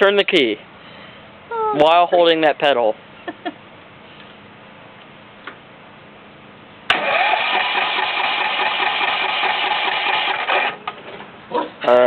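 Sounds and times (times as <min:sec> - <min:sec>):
tractor engine running: 0:06.9 - 0:11.1.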